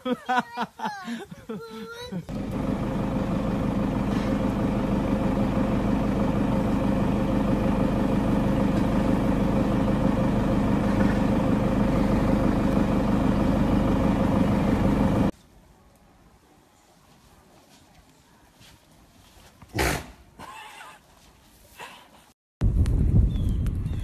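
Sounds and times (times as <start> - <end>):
vehicle engine idling: 2.3 - 15.3.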